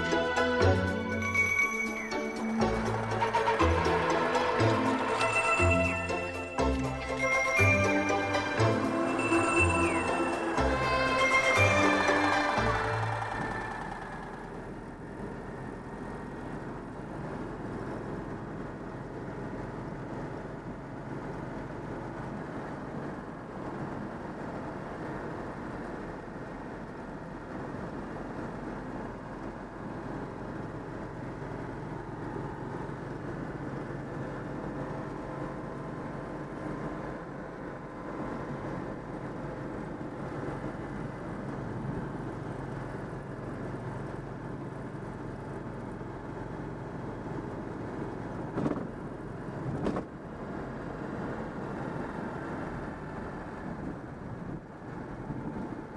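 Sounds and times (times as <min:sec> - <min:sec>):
car engine running: 0:00.0 - 0:22.0
road noise: 0:00.0 - 0:55.9.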